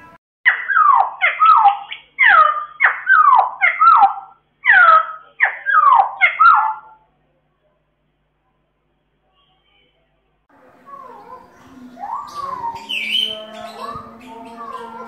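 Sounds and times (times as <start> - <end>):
bird singing whistled notes: 11.6 - 15.0.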